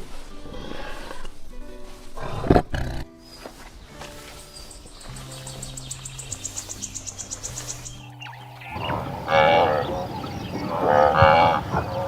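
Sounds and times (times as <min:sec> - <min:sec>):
background music with held notes: 0:00.0 - 0:12.0
farm animals bleating: 0:08.1 - 0:12.0.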